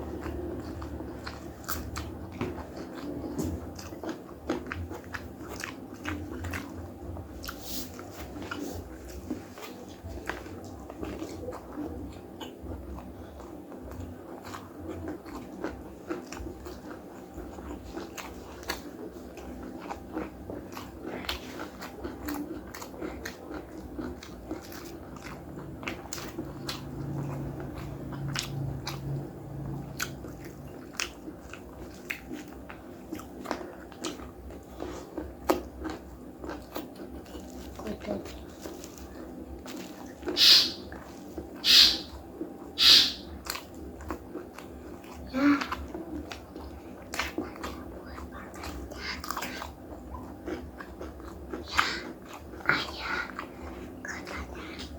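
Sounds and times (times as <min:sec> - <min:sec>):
chewing and crunching food: 0:00.0 - 0:54.9
mouth clicks: 0:40.3 - 0:40.9, 0:41.6 - 0:42.2, 0:42.8 - 0:43.4.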